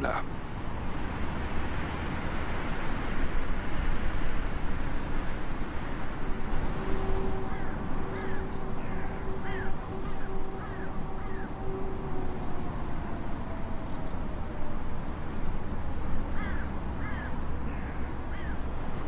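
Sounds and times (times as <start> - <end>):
birds calling: 6.5 - 11.6, 13.8 - 14.4, 16.4 - 18.7.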